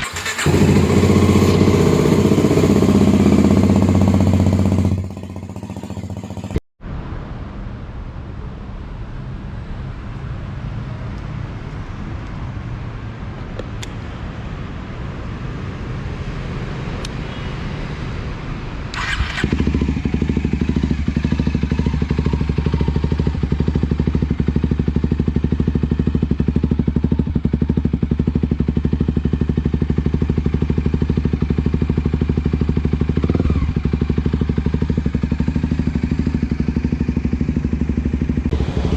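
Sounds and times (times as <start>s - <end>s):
motorcycle engine idling: 0.0s - 6.6s, 19.0s - 38.9s.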